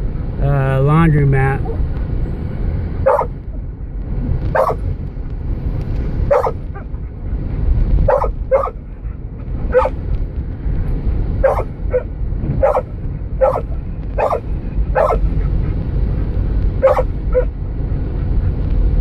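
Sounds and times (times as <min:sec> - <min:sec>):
car driving rumble: 0:00.0 - 0:19.0
dog barking: 0:03.0 - 0:03.3, 0:04.5 - 0:04.8, 0:06.3 - 0:06.9, 0:08.1 - 0:08.8, 0:09.7 - 0:10.0, 0:11.4 - 0:15.3, 0:16.8 - 0:17.5.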